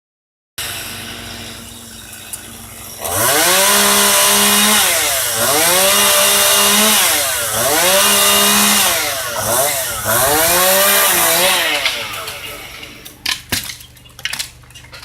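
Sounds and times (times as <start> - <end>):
chainsaw revving: 0.6 - 1.9, 2.5 - 13.2.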